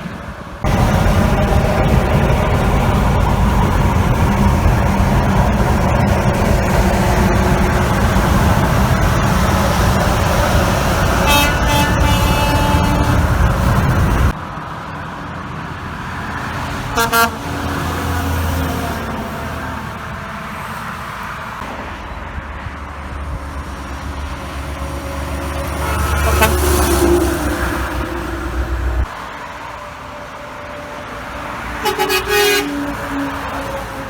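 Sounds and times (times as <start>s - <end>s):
light traffic: 0.0s - 34.0s
trucks passing on a highway: 0.0s - 34.0s
truck horn toots: 8.0s - 14.3s, 16.9s - 17.6s, 25.7s - 28.1s, 31.7s - 33.8s.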